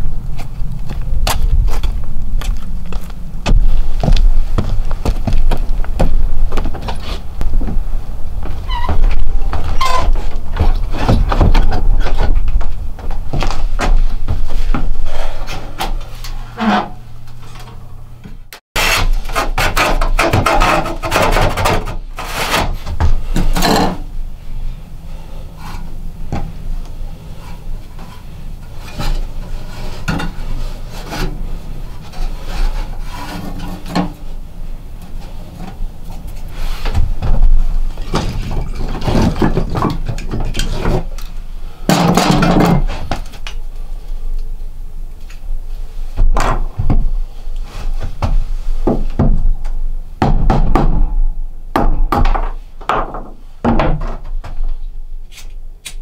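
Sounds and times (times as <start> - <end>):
wood scraping: 0.3 - 24.1, 25.1 - 41.2
wooden knocks and clunks: 3.4 - 15.1, 19.3 - 24.0, 36.8 - 41.1, 46.2 - 47.2, 47.9 - 49.6, 50.2 - 51.2, 51.8 - 54.7.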